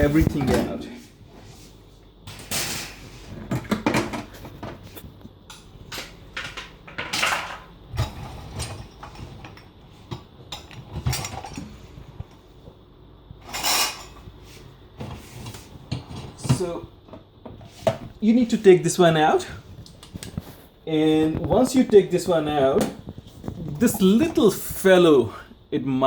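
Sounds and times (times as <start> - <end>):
dishwasher racks being emptied: 6.0 - 9.6, 10.8 - 11.8.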